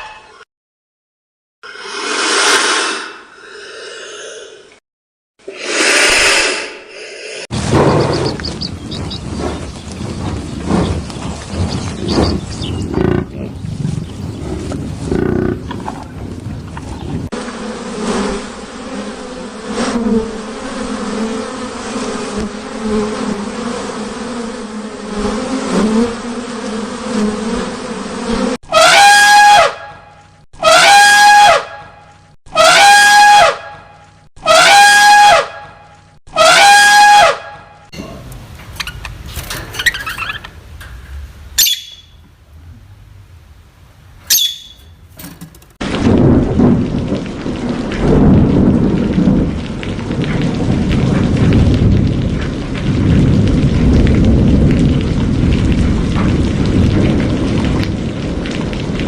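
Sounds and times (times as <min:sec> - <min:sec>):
insect buzzing: 0:14.4 - 0:15.8, 0:17.1 - 0:28.6.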